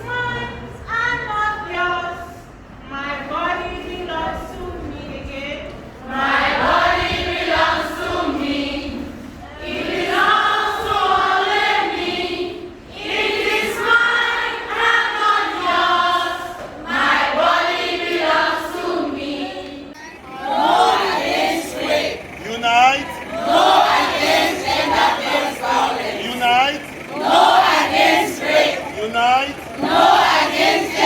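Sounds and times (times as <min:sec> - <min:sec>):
group singing in unison: 0:06.0 - 0:31.0.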